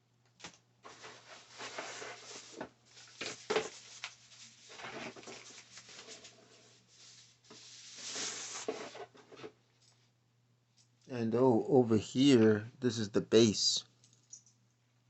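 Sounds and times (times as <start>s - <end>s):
packaging rustling: 0.8s - 9.2s.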